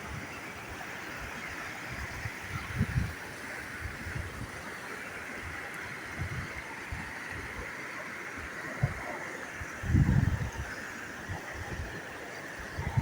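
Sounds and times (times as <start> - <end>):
stream water rushing: 0.0 - 13.0
low wind rumbles on microphone: 1.9 - 4.6, 6.2 - 7.7, 8.6 - 13.0.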